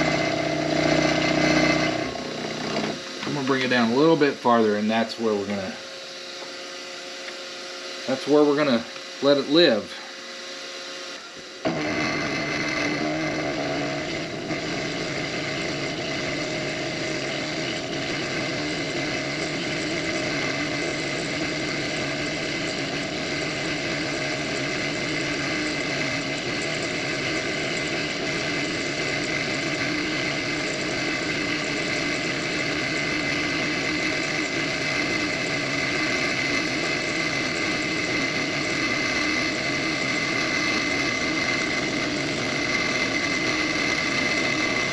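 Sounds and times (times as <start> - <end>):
high whine of cutting tool: 0.0 - 44.9
milling machine running: 0.0 - 44.9.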